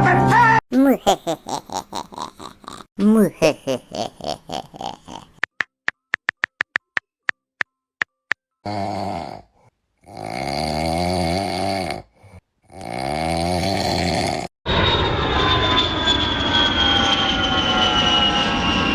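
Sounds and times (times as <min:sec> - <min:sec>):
person snoring: 0:03.8 - 0:05.4, 0:08.6 - 0:14.5
airplane flying by: 0:14.7 - 0:18.9.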